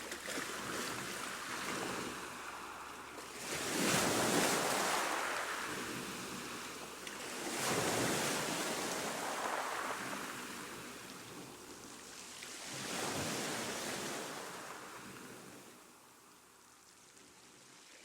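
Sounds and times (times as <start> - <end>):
ocean waves washing in: 1.2 - 6.8, 7.5 - 10.9.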